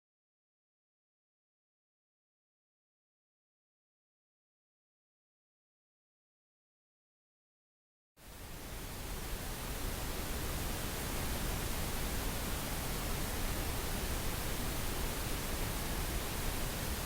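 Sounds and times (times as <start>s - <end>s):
pink noise hiss: 8.2s - 17.0s.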